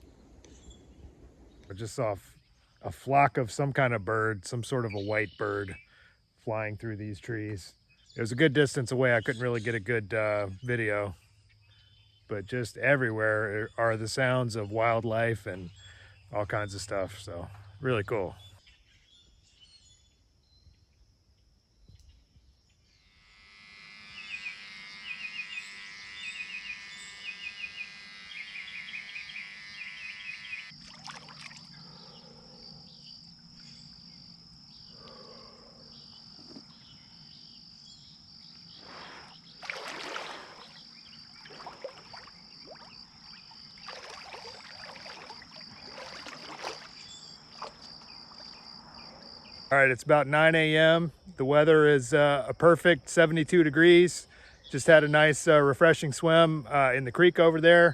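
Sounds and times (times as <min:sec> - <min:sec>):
high-pitched insect drone: 0:22.7 - 0:50.9
chirping calls: 0:23.8 - 0:30.8.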